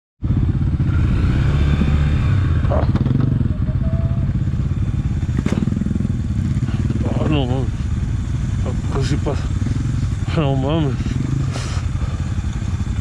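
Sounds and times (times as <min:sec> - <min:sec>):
motorcycle engine running: 0:00.2 - 0:13.0
knocks of clatter: 0:05.2 - 0:07.4.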